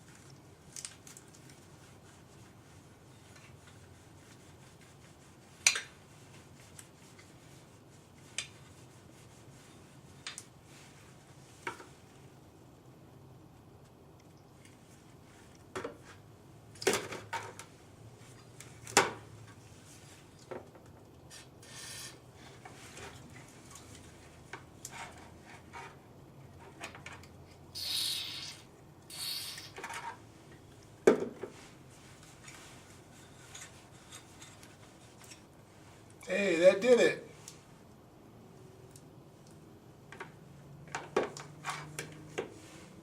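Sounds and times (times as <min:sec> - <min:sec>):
short hissing rushes: 0:27.7 - 0:29.8.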